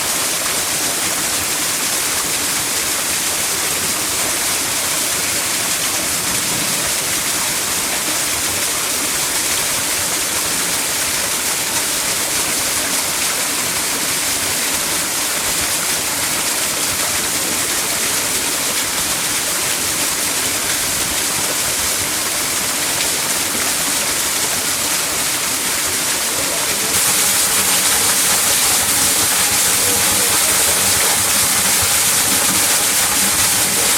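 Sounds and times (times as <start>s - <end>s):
waterfall pouring: 0.0s - 33.9s.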